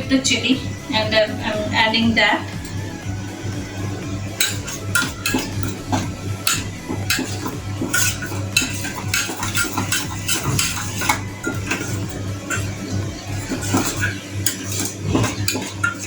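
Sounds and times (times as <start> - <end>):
low hum: 0.0 - 15.9
metal spoon scraping a bowl: 2.5 - 16.0.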